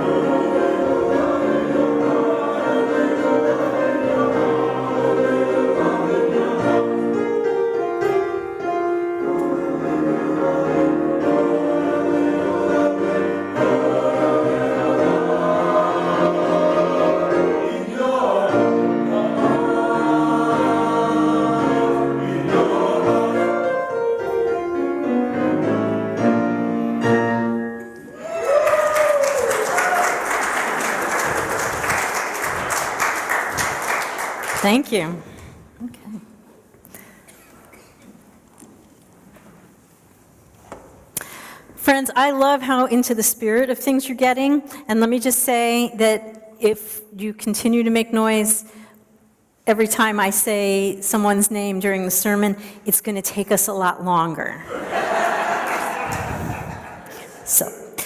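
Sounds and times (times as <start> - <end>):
choir singing a hymn: 0.0 - 8.3, 8.9 - 26.0, 54.7 - 57.4
person whooping: 28.1 - 30.3
applause: 28.4 - 34.8.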